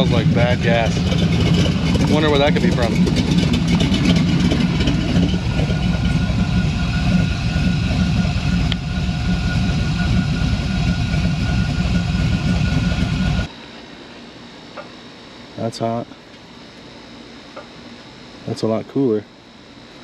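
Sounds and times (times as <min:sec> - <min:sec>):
car engine idling: 0:00.0 - 0:13.5.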